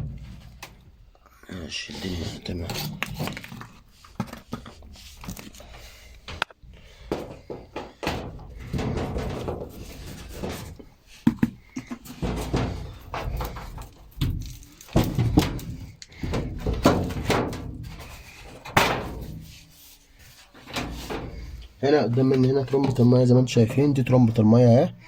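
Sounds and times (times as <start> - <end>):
thunks and knocks of panels: 0.0 - 1.0, 6.3 - 19.7, 20.4 - 21.8
parts clattering and rustling: 0.0 - 1.2, 2.0 - 23.8.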